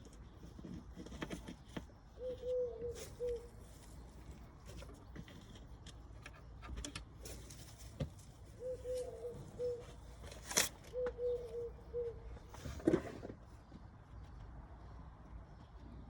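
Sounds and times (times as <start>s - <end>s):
dove cooing: 2.2s - 3.7s, 8.4s - 12.8s.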